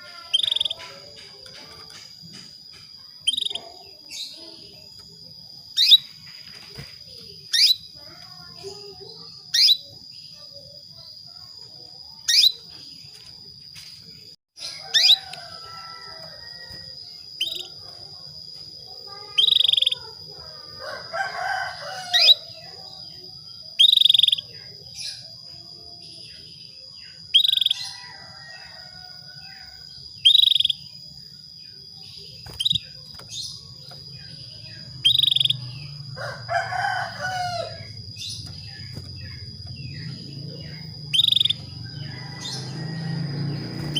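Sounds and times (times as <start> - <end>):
canary chirping: 0.0 - 6.2, 7.3 - 10.5, 12.1 - 12.7, 14.6 - 17.8, 19.0 - 23.0, 23.7 - 25.3, 27.0 - 28.6, 29.4 - 31.0, 31.8 - 43.9
longer lower bird call: 35.0 - 38.0, 40.1 - 43.2.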